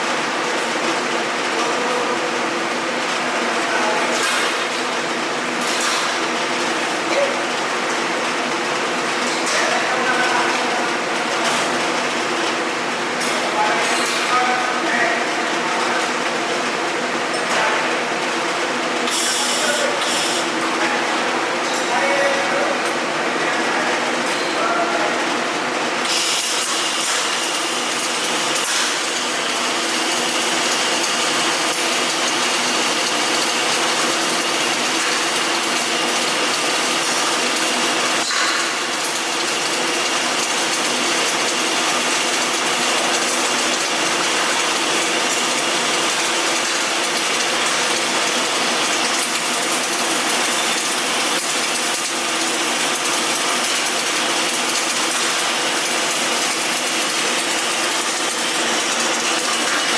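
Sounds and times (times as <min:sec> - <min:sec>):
welding arc crackling: 0:18.3 - 0:23.0, 0:25.3 - 0:59.9.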